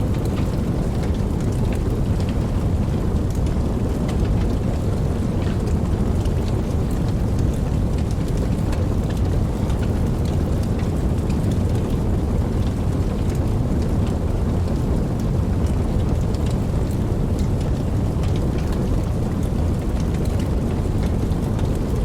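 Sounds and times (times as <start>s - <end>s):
steady rain: 0.0s - 22.0s
raindrops ticking: 0.1s - 22.0s.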